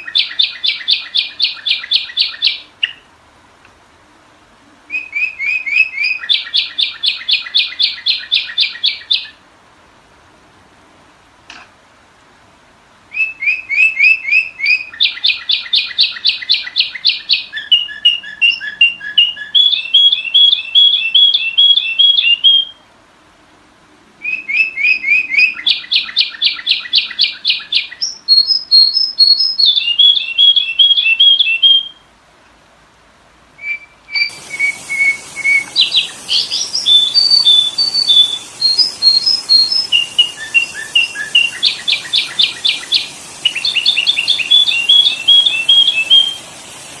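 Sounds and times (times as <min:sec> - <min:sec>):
bird rapid repeated chirps: 0:00.0 - 0:03.0, 0:24.5 - 0:31.8, 0:33.7 - 0:47.0
steady hiss: 0:00.0 - 0:24.2, 0:32.0 - 0:47.0.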